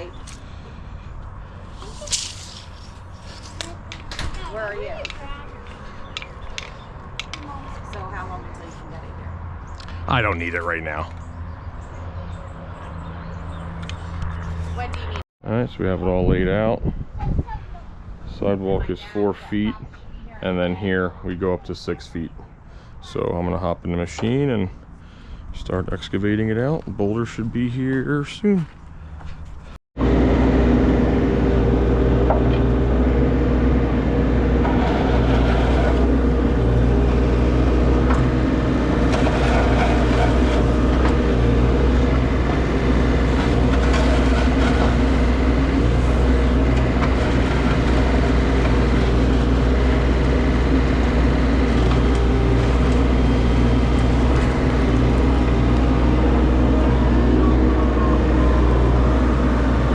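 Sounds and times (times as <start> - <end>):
excavator engine droning: 30.0 - 59.9.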